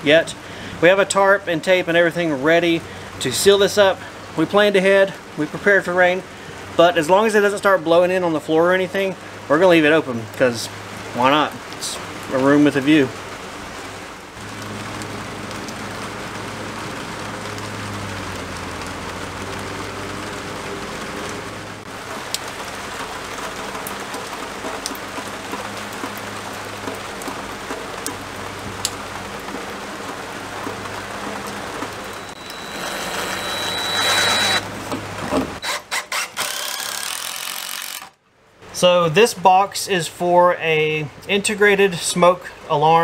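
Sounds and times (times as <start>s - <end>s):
steady rain falling: 0.0s - 35.6s, 36.7s - 43.0s
cordless drill driving a screw: 32.4s - 34.6s, 35.6s - 38.2s.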